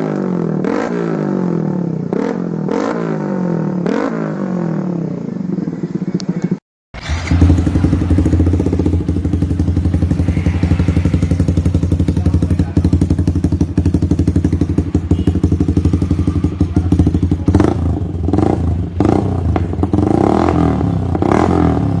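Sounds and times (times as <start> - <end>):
motorcycle engine idling: 4.6 - 22.0.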